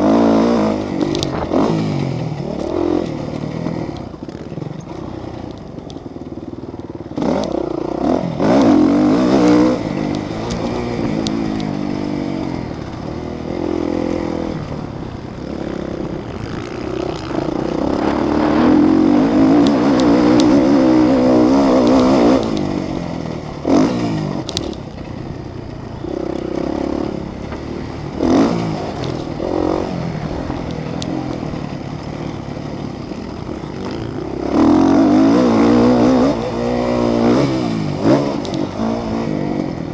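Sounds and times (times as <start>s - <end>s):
motorcycle engines revving: 0.0s - 39.9s.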